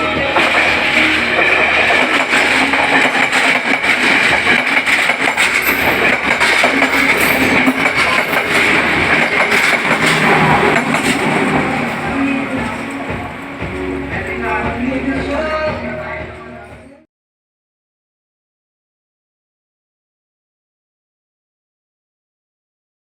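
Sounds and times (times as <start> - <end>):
train passing: 0.0 - 17.0
wheels clicking over rail joints: 0.2 - 15.6.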